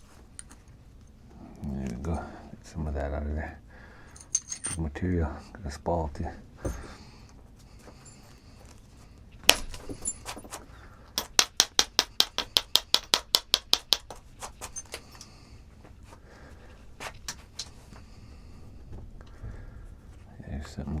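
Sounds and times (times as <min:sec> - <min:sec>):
stone striker tapping stone: 0:06.6 - 0:07.0, 0:09.5 - 0:10.6, 0:11.2 - 0:15.0.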